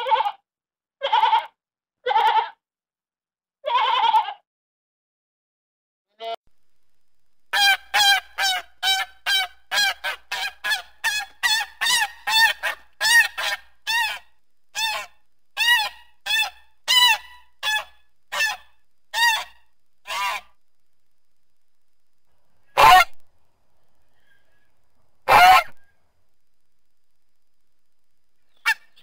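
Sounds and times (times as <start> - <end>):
goose honking: 7.6 - 20.5, 22.8 - 23.2, 25.3 - 25.8.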